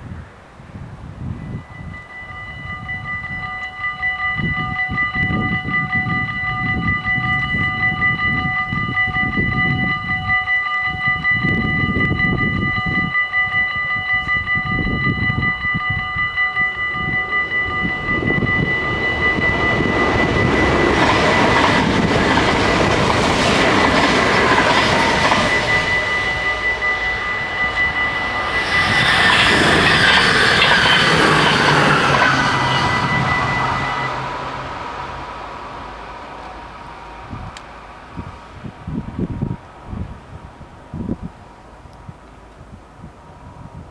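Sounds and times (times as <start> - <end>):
train rumble and wheel clatter: 1.2 - 43.9
level crossing bells ringing: 1.5 - 35.4.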